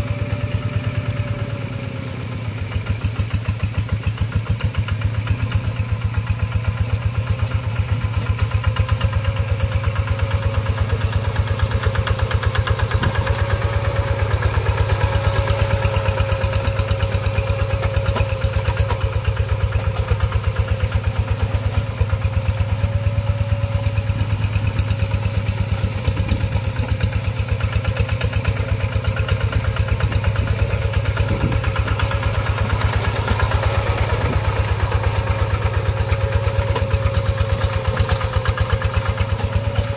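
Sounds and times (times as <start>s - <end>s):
diesel engine running: 0.0s - 39.9s
steady engine whine: 0.0s - 39.9s.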